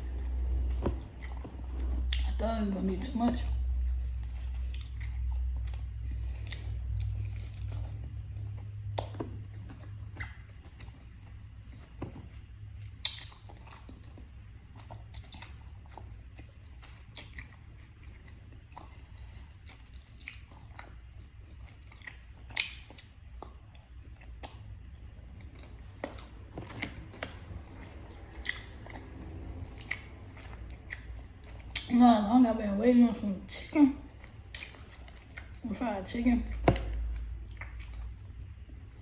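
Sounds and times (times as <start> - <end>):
person chewing crispy food: 0.0 - 2.4, 3.4 - 32.0, 34.0 - 39.0
low hum: 23.4 - 39.0.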